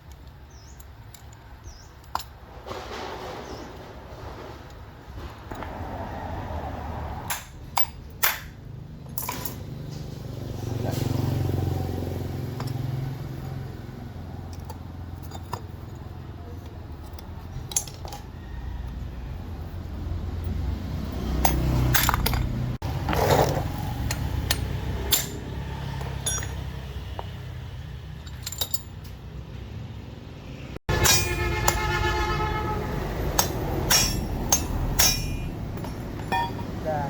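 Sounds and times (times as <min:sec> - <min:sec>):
small metal parts clinking: 0:00.0 - 0:02.5, 0:07.3 - 0:10.0, 0:12.5 - 0:19.0, 0:21.1 - 0:29.4, 0:33.4 - 0:36.8.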